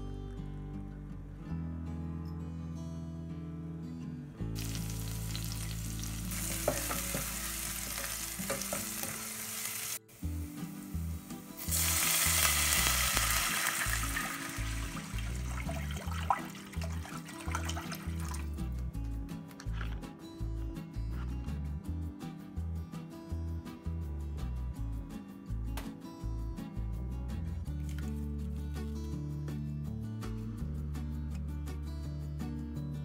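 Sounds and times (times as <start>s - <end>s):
garlic sizzling in oil: 4.6s - 18.3s.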